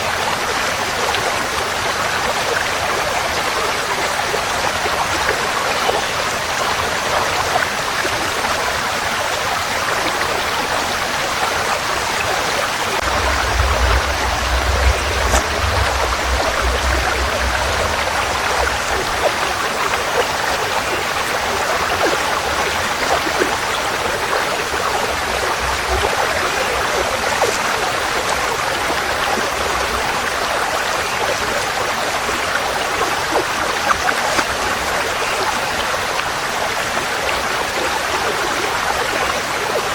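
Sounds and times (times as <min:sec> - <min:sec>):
stream water rushing: 0:00.0 - 0:39.9
low rumble: 0:13.0 - 0:19.9.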